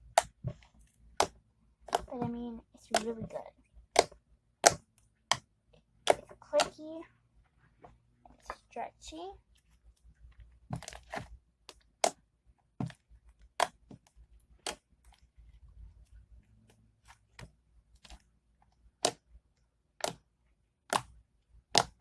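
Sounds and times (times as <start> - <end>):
slime clicking and popping: 0.0 - 6.8, 10.5 - 15.4, 17.3 - 22.0.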